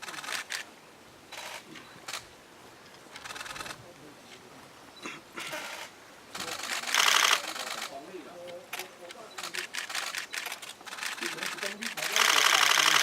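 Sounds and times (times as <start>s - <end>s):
camera shutter clicks: 0.0s - 0.7s, 5.6s - 13.0s.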